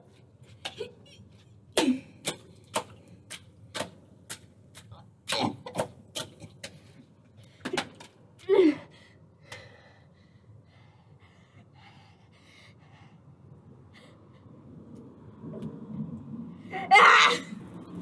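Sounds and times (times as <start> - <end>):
faint breathing: 8.9 - 14.8.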